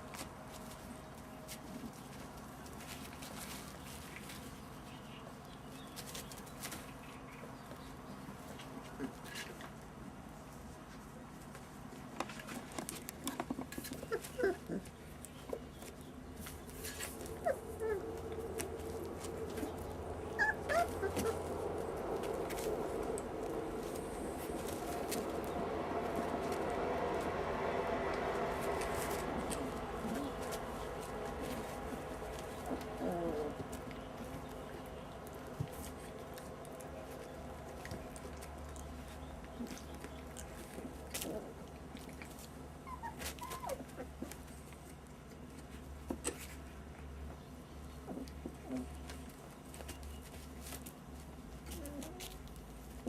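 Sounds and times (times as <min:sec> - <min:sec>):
small paws pattering and scratching: 0:00.0 - 0:53.0
puppies whimpering and yipping: 0:13.9 - 0:15.9, 0:17.0 - 0:22.7, 0:28.9 - 0:33.9, 0:39.1 - 0:44.7
steady low hum: 0:14.0 - 0:42.9.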